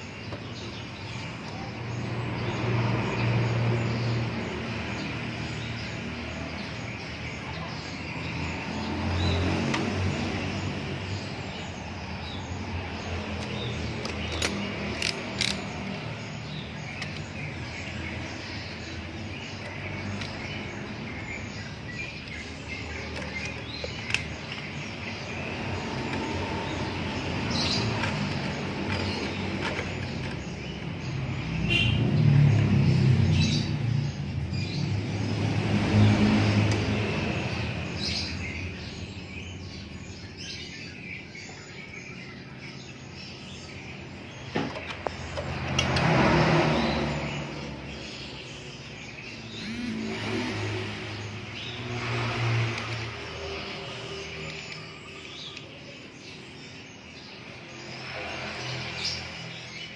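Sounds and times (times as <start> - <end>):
steady background noise: 0.0 - 31.6
birds chirping: 0.0 - 59.9.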